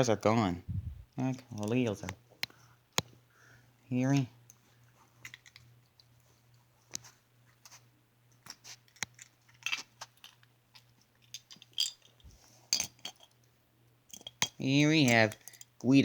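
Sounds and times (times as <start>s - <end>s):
faint low hum: 0.0s - 16.0s
toy cars clicking and rustling: 5.2s - 6.1s, 8.3s - 13.5s, 14.1s - 15.7s.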